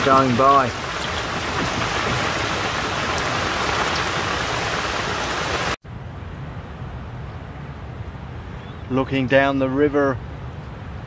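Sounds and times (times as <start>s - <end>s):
heavy rain falling: 0.0s - 5.8s.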